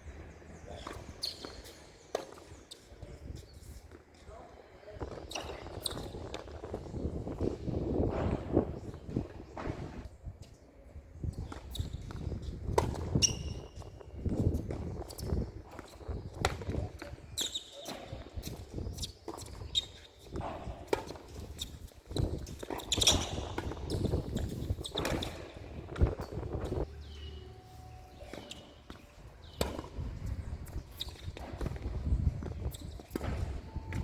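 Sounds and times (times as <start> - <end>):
footsteps on court: 19.2 - 34.0.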